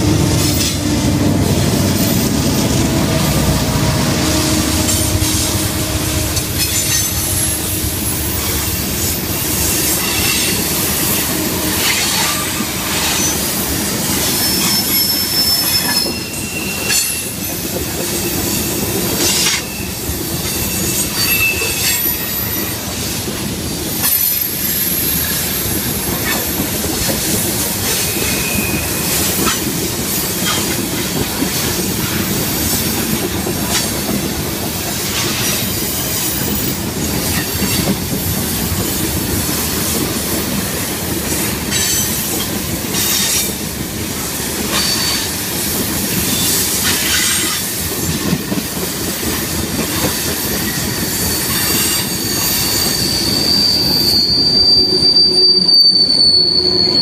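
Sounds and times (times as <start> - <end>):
train wheels rumbling on rails: 0.0 - 57.0
high wheel squeals: 1.9 - 23.0, 23.9 - 32.8, 44.7 - 47.7, 49.9 - 57.0.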